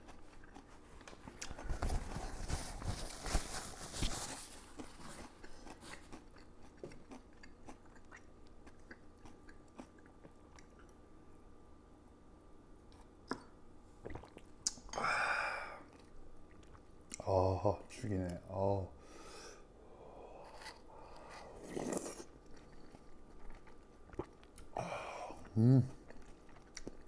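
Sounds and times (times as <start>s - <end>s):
person chewing crunchy food: 0.0s - 2.2s, 4.4s - 11.0s, 12.9s - 15.0s, 20.2s - 27.0s.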